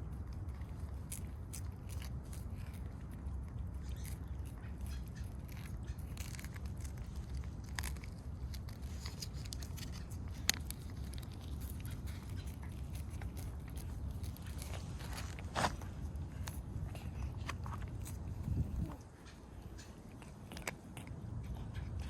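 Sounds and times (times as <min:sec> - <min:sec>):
cats licking and chewing: 0:00.0 - 0:22.0.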